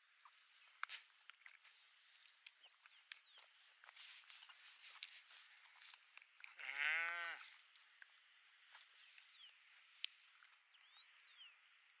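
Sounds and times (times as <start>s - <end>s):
sheep bleating: 6.6s - 7.5s
faint bird chirps: 10.7s - 11.7s.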